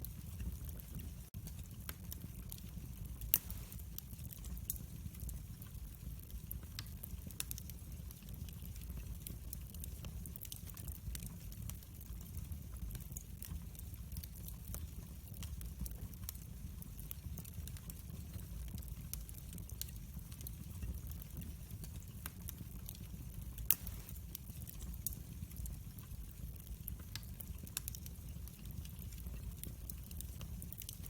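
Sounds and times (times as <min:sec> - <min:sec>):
fire crackling in a fireplace: 0:00.0 - 0:31.0.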